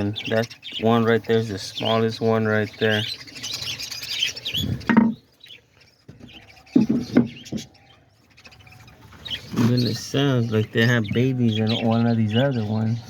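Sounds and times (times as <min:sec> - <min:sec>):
squeaky begging calls: 0:00.0 - 0:05.7
small parrots chirping: 0:00.0 - 0:13.0.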